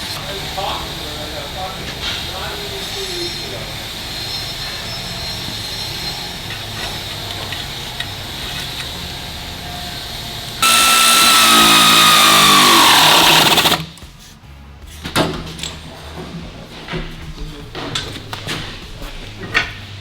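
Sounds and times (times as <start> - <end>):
air tool whining: 0.0 - 13.9.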